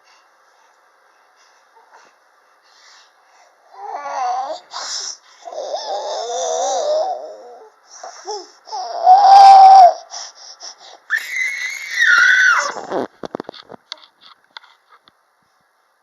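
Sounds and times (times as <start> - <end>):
baby babbling: 3.8 - 4.6, 5.5 - 10.1
baby shouting: 8.7 - 10.0, 11.1 - 12.9
baby squealing: 8.7 - 10.0, 11.1 - 12.9.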